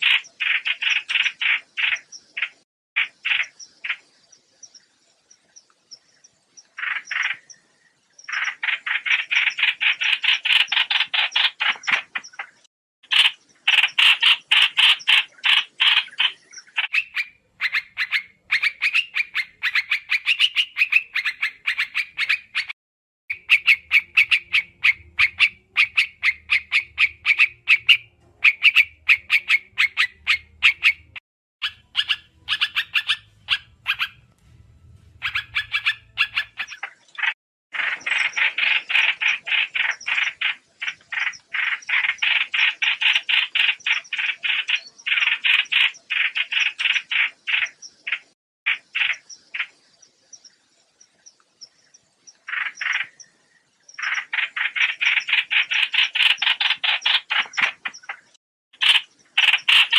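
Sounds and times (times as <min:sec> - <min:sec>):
bird singing chattering trills: 0:00.0 - 0:59.9
faint low hum: 0:32.0 - 0:36.6.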